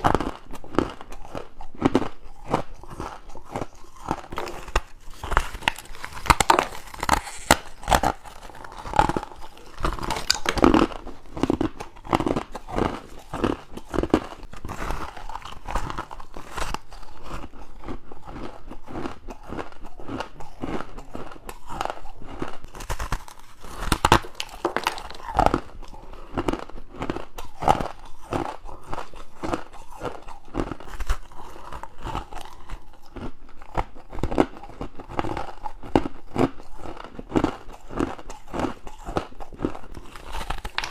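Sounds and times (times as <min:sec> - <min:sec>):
crushed ice being chewed: 0:00.0 - 0:40.9.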